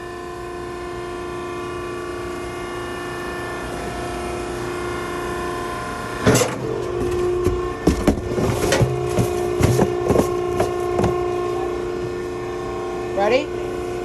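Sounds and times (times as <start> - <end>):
hydraulic power unit hum: 0.0 - 14.0
cardboard and metal knocks: 6.3 - 11.3.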